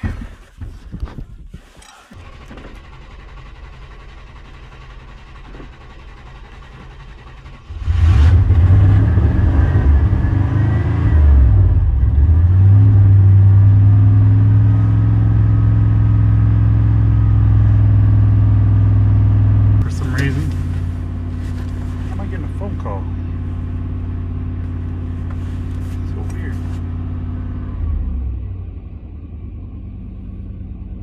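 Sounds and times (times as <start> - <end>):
engine failing to start: 1.9 - 8.3
vehicle engine revving and idling: 2.2 - 31.0.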